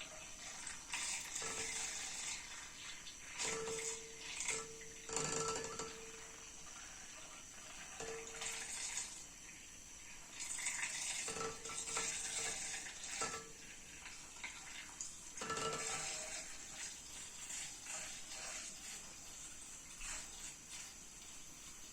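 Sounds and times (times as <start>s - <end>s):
milk frother motor hum: 0.0s - 21.9s.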